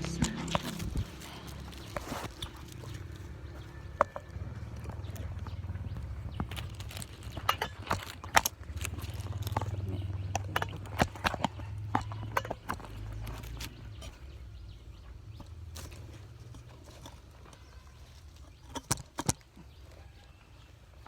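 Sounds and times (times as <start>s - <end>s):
sharp clicks and knocks: 0.0s - 14.2s.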